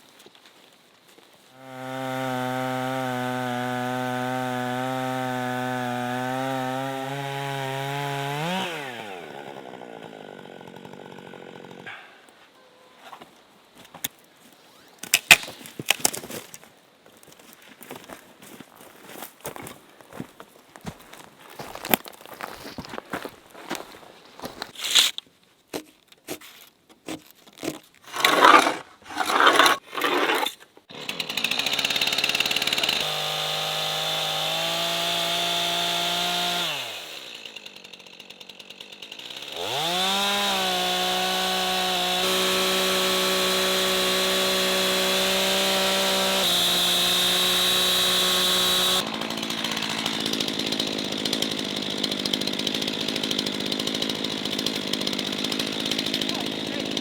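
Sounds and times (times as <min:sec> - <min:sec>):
chainsaw milling a log: 0:01.5 - 0:12.3, 0:22.8 - 0:57.0.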